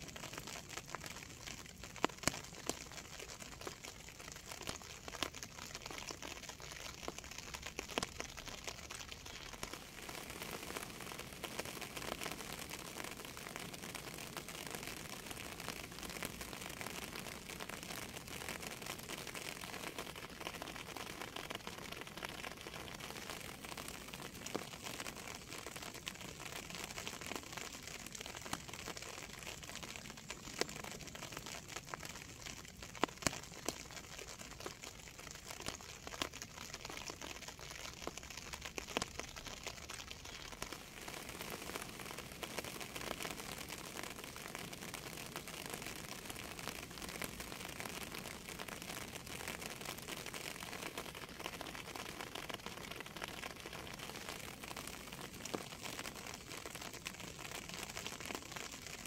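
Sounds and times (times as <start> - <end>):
raindrops ticking: 0.0 - 59.0
steady rain: 0.0 - 59.0.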